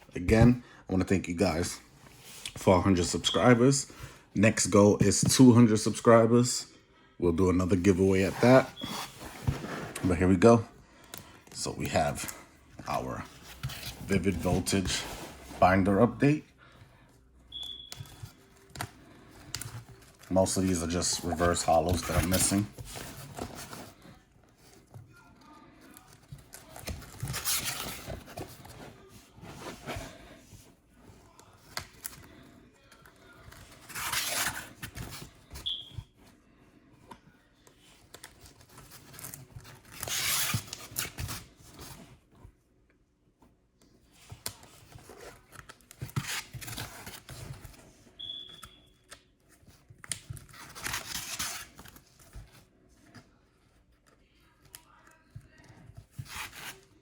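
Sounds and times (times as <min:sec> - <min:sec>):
soft handling sounds: 0:00.0 - 0:57.0
binder pages turning: 0:18.0 - 0:24.2.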